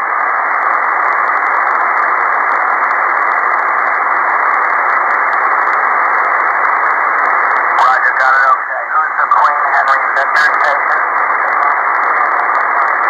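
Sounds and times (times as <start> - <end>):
radio receiver hiss: 0.0 - 13.0
static ticks: 2.5 - 8.6, 9.2 - 13.0.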